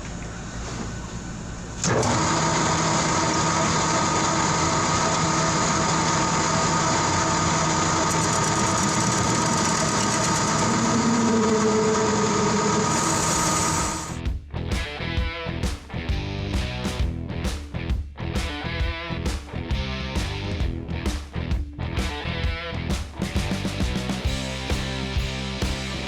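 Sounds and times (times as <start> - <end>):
machine humming: 0.0 - 14.2.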